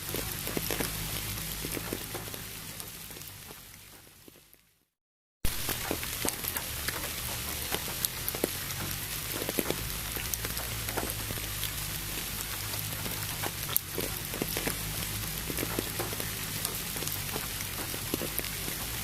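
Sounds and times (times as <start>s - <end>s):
low steady rumble: 0.0s - 4.2s, 5.5s - 19.0s
raindrops ticking: 0.0s - 4.7s, 5.5s - 19.0s
steady rain: 0.0s - 4.7s, 5.4s - 19.0s.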